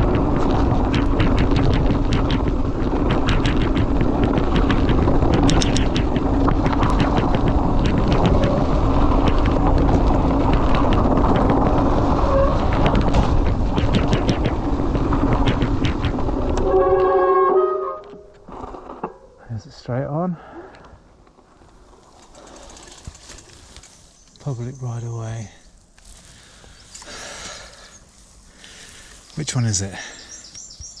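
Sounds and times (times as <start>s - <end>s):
bike clicks and rattles: 0.0s - 16.7s, 20.7s - 24.4s, 25.8s - 29.5s
wind and tyre rumble: 0.0s - 19.5s, 20.8s - 31.0s.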